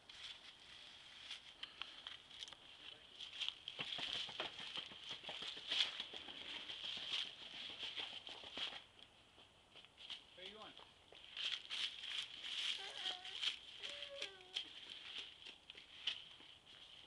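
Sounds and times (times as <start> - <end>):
footsteps crunching dry leaves: 0.0 - 4.2, 10.0 - 17.0.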